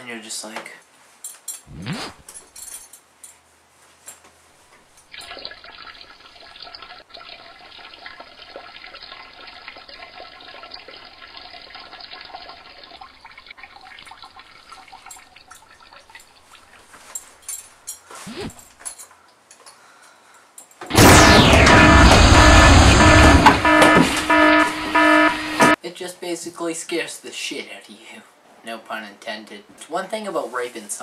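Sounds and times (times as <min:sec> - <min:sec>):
short sharp sound: 0:01.7 - 0:02.2, 0:20.9 - 0:25.8.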